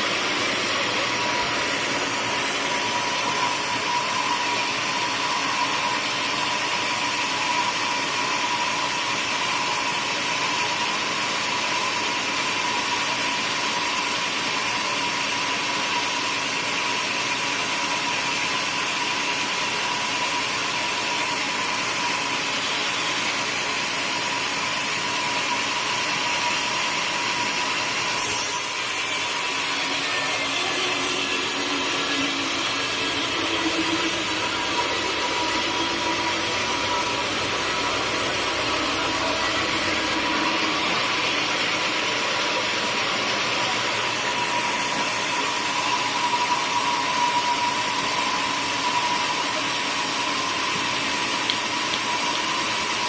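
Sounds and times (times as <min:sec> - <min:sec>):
sawmill saw cutting wood: 0:21.0 - 0:53.0.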